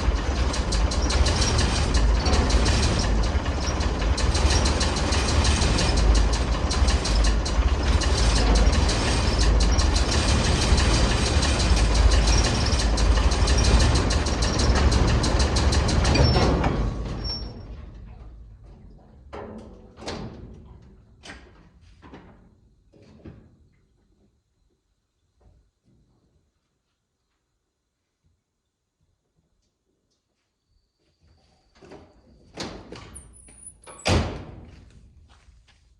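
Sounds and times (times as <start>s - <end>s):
truck engine idling: 0.0s - 16.3s
engine running down to a stop: 0.0s - 18.6s.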